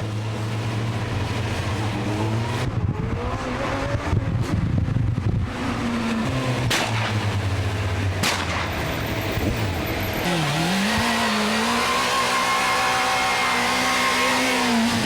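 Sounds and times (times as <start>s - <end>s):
motorcycle engines running: 0.0s - 15.0s
sharp cracks: 6.6s - 7.6s, 8.2s - 9.1s.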